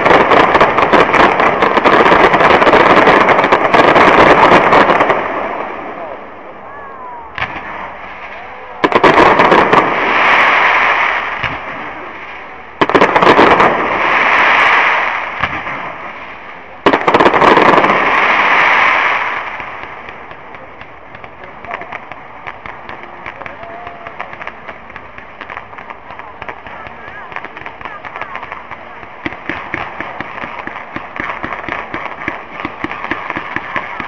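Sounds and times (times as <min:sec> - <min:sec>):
fireworks crackling: 0:00.0 - 0:06.6, 0:07.3 - 0:34.0.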